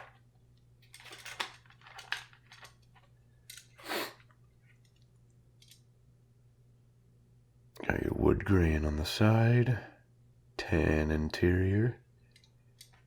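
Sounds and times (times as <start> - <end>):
plastic packaging crinkling: 0.8 - 3.7.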